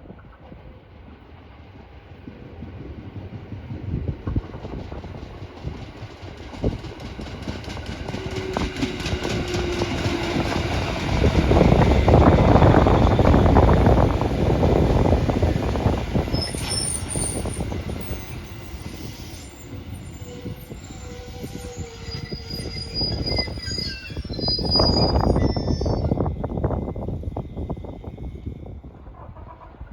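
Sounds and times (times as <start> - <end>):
train rumbling past: 0.0 - 29.9
wheels squealing on rails: 6.3 - 29.9.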